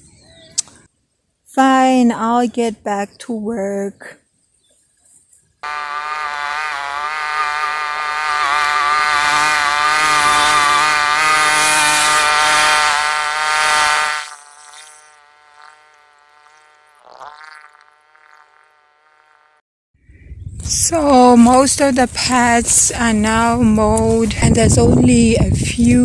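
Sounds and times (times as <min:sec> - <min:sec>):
grass cutter engine whining: 0:05.6 - 0:19.6.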